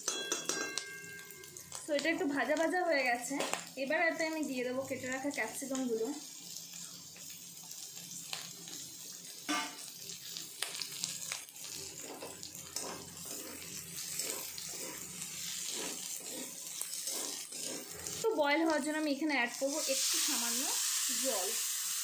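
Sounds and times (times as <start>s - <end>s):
vegetables sizzling in oil: 0.0s - 22.0s
metal spatula scraping a pan: 11.6s - 18.4s.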